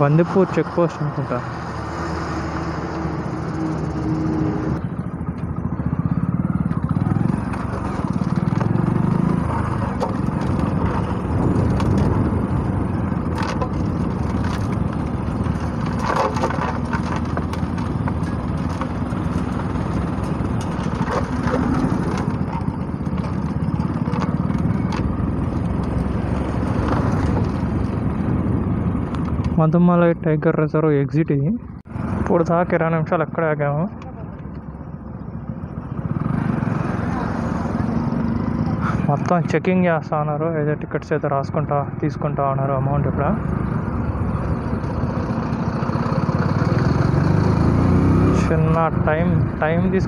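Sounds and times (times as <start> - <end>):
motorcycle engine running: 1.6 - 29.6, 31.8 - 39.6, 42.8 - 50.0
tyre and wind noise: 3.1 - 29.6.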